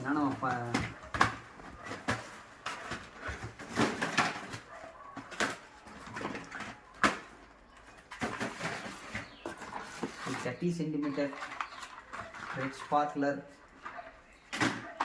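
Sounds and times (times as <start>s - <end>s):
cardboard boxes knocking and rustling: 0.0s - 10.6s.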